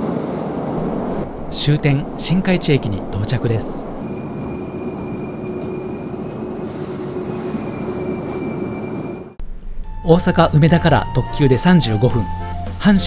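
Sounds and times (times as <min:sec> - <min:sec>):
train rumbling: 0:00.0 - 0:10.6
low hum: 0:00.7 - 0:10.0
thin high whine: 0:00.8 - 0:09.4.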